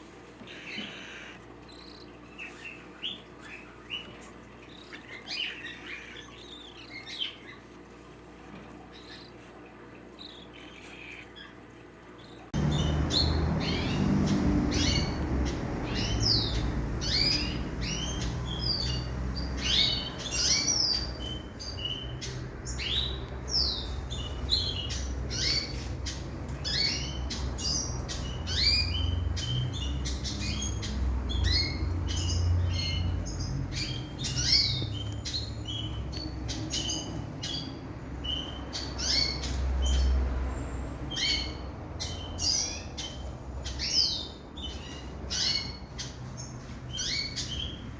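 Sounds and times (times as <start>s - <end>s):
flock of birds chirping: 0.0s - 47.9s
steady low rumble: 12.5s - 46.6s.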